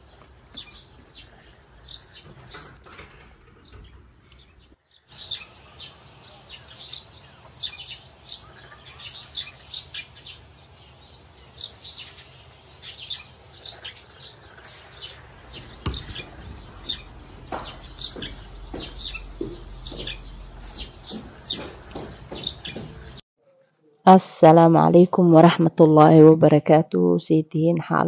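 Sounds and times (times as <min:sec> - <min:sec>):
small birds chirping: 0:00.0 - 0:23.2
low rumble: 0:15.3 - 0:21.1
dull knock: 0:15.5 - 0:23.2.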